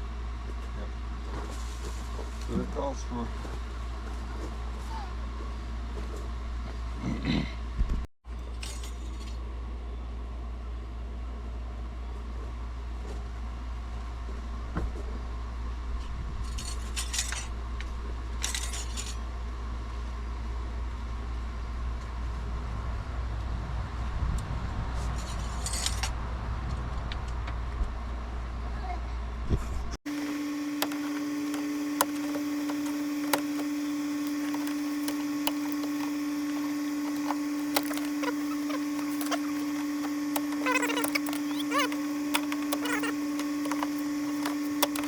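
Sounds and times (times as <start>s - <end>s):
steady low hum: 30.1s - 45.0s.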